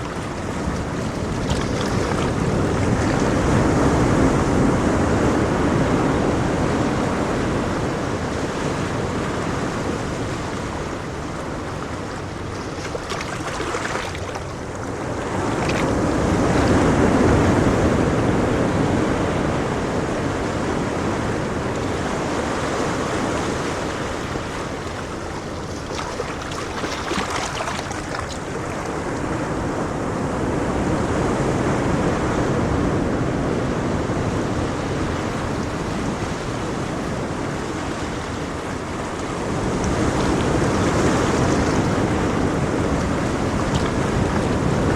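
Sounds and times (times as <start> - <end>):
ocean waves breaking on shore: 0.0 - 44.9.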